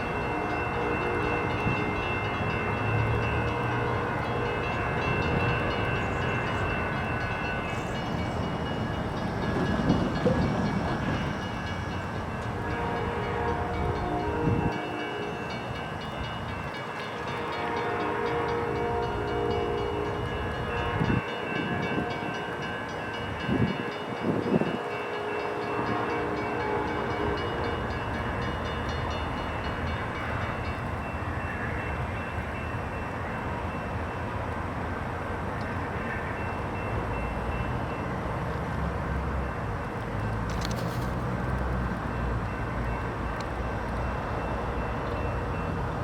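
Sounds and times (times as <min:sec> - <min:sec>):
train horn: 0:00.0 - 0:06.6, 0:12.4 - 0:16.0, 0:17.0 - 0:22.9, 0:23.5 - 0:28.5
train rumble: 0:00.0 - 0:46.0.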